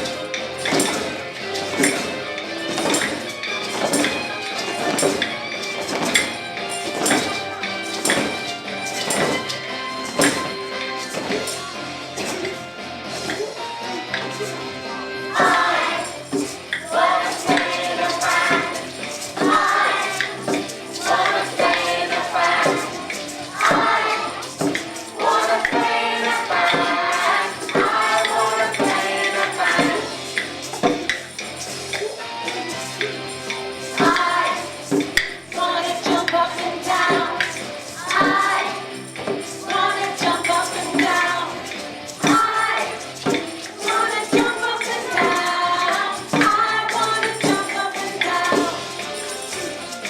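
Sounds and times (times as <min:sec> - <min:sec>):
instrumental accompaniment: 0:00.0 - 0:50.0
tambourine: 0:00.0 - 0:50.0
children singing together: 0:15.2 - 0:30.4, 0:33.9 - 0:39.0, 0:39.6 - 0:49.0.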